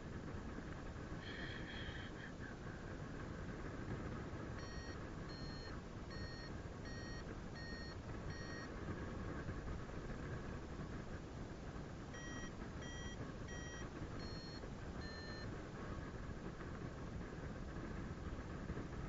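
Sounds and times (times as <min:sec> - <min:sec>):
variometer short high beeps: 0:04.6 - 0:08.7, 0:12.2 - 0:15.4.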